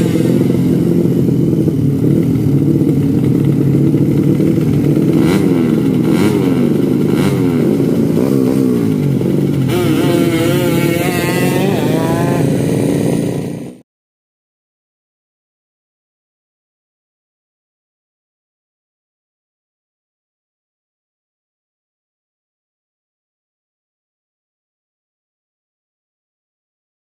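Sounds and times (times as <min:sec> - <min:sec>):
motorcycle engines revving: 0:00.0 - 0:13.8.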